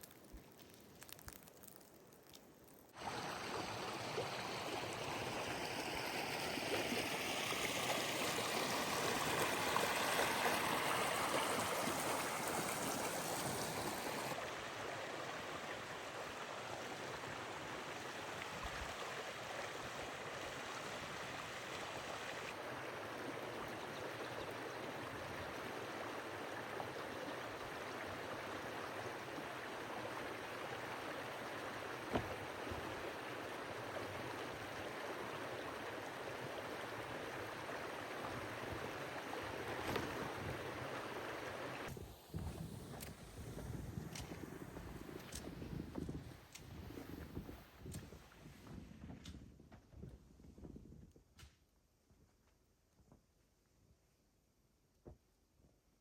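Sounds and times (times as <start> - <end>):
stream rushing and gurgling: 3.0 - 41.9.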